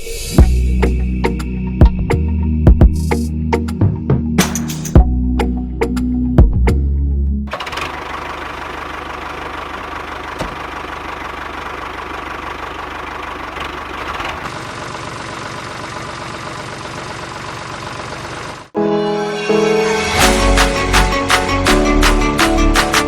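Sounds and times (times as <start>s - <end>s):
engine idling: 7.5s - 18.8s.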